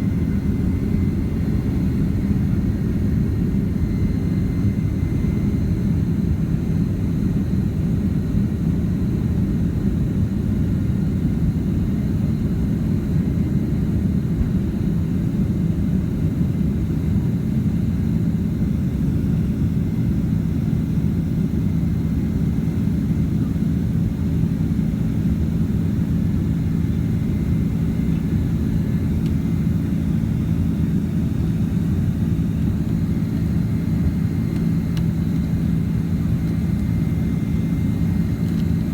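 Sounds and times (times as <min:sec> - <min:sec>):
jet engine cabin rumble: 0:00.0 - 0:38.9
faint steady whine: 0:10.6 - 0:38.9.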